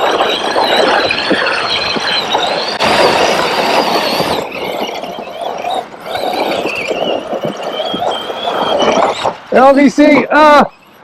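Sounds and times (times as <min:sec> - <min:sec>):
electric motor whining: 0:00.0 - 0:11.0
tyre and drivetrain noise: 0:00.0 - 0:11.0.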